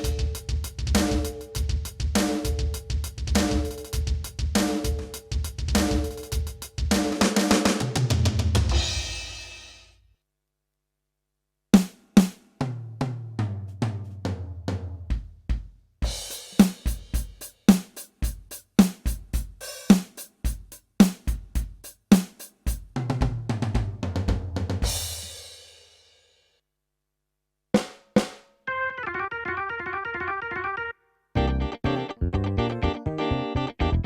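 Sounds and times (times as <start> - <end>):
cymbal crash: 0.0 - 2.8, 8.7 - 9.9
electronic drum beat: 0.0 - 9.6, 15.1 - 25.3.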